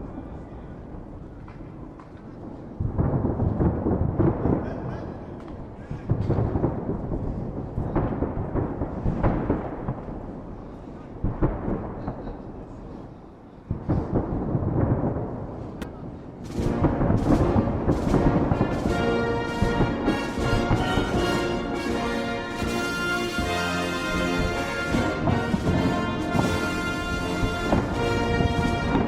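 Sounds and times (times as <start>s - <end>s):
fireworks booming: 0.1s - 29.0s
music: 16.6s - 29.0s.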